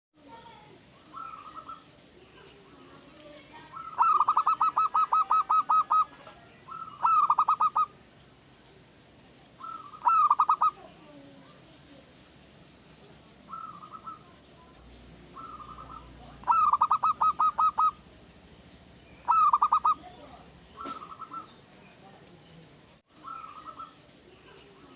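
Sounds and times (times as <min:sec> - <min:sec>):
dove cooing: 0:01.1 - 0:02.9, 0:03.7 - 0:08.0, 0:09.6 - 0:11.3, 0:13.5 - 0:14.4, 0:15.3 - 0:18.1, 0:19.2 - 0:21.6, 0:23.2 - 0:24.9.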